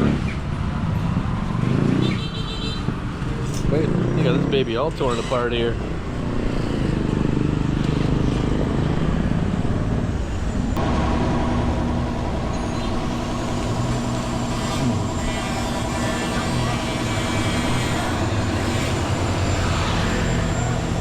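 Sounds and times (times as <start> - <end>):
vehicle engine running: 5.8 - 21.0
steady droning tone: 10.2 - 21.0.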